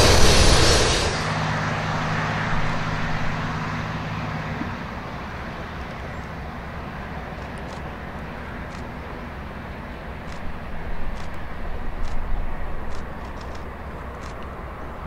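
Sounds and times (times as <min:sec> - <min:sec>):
distant diesel locomotives rumbling: 0:00.0 - 0:15.0.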